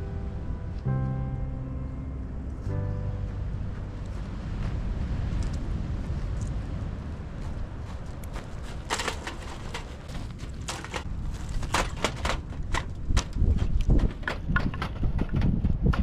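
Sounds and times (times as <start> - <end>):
wind rumble on microphone: 0.0 - 16.0
irregular clicks and knocks: 8.7 - 16.0.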